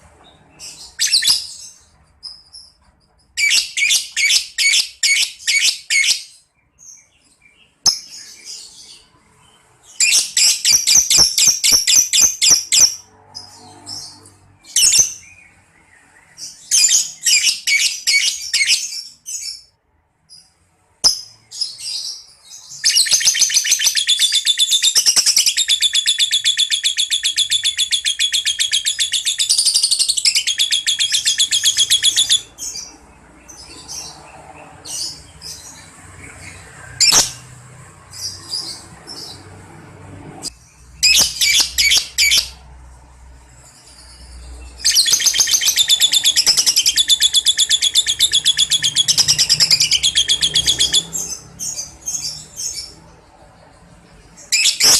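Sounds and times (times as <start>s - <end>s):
bird chirps: 0.0s - 39.5s, 40.5s - 42.6s, 43.6s - 54.9s
lovebird chattering trill: 22.7s - 32.9s, 41.0s - 42.6s, 44.8s - 53.0s.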